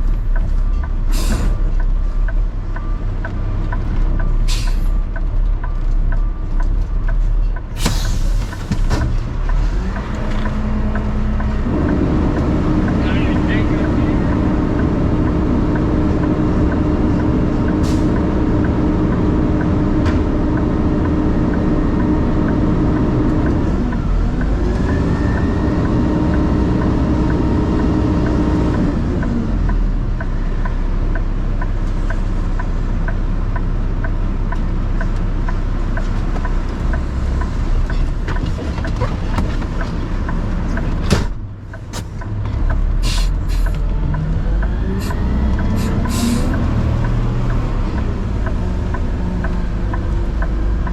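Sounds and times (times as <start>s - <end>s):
garbage truck engine running: 0.0s - 50.9s
light regular ticking: 46.5s - 50.9s.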